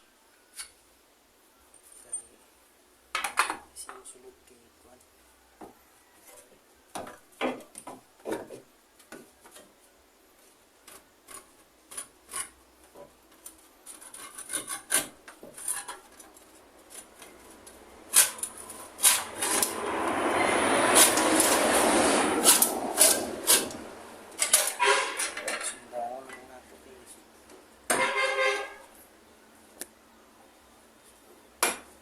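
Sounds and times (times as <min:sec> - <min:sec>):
scraping against wood: 0:10.4 - 0:26.5.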